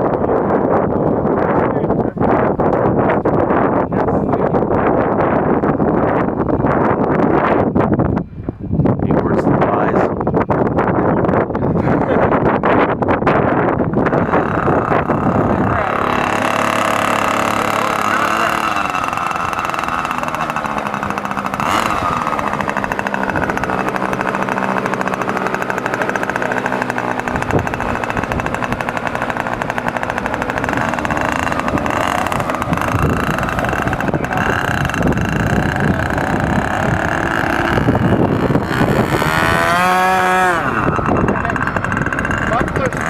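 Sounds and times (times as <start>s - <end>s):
wind on microphone: 0.0s - 43.0s
model plane engine running: 9.4s - 43.0s.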